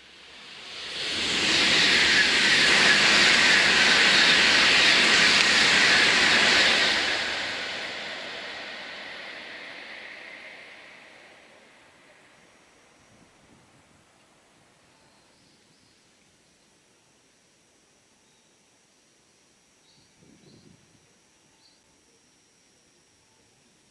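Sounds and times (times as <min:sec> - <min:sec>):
high-speed train passing: 0:00.0 - 0:13.8.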